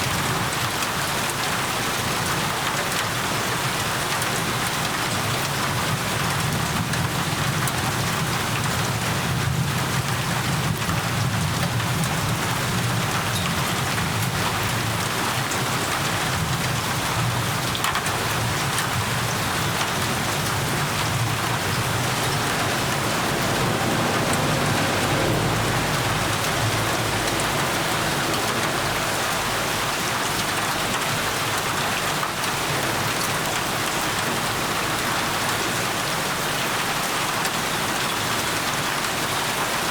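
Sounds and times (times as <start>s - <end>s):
heavy rain pattering: 0.0s - 39.9s
low rumble: 19.0s - 30.8s.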